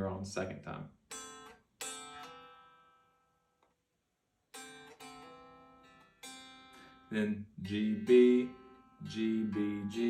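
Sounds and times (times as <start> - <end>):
fingerpicked acoustic guitar: 4.5 - 10.0.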